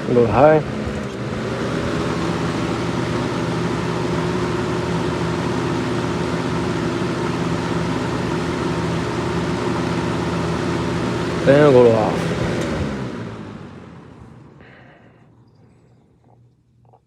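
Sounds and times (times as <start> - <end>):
box fan motor humming: 0.0 - 17.0.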